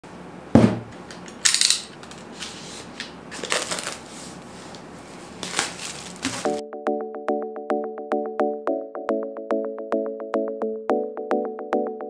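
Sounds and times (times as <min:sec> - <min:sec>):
plastic wrap rustling: 0:02.2 - 0:06.5
utility knife cutting plastic wrap: 0:05.4 - 0:06.5.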